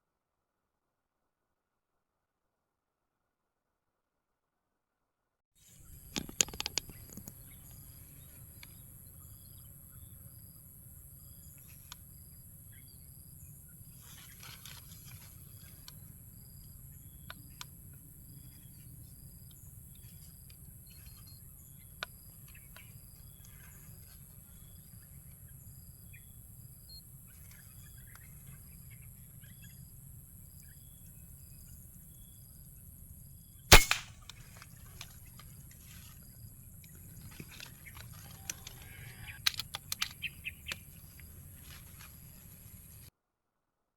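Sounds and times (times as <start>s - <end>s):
air rifle shot: 33.7s - 34.3s
sharp clicks: 33.7s - 34.4s, 39.3s - 40.9s.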